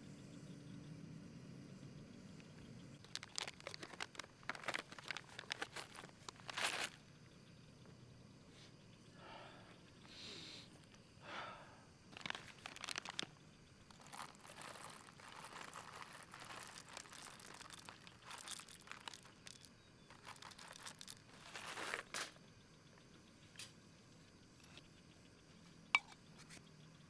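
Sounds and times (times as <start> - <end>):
crinkling and rustling: 3.0 - 7.1, 12.1 - 22.4.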